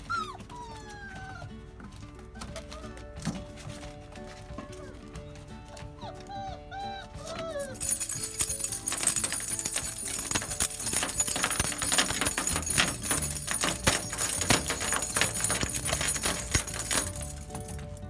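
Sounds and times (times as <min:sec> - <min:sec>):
jingling rattling clatter: 0:07.6 - 0:18.0.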